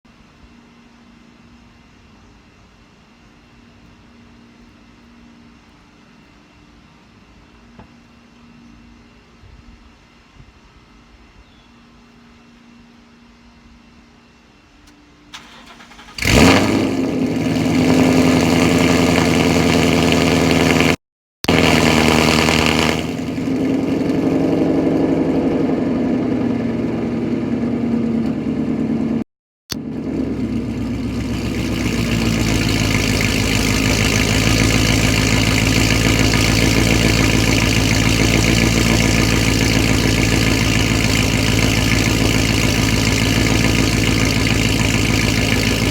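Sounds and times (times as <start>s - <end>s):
car engine starting and idling: 15.3s - 45.9s.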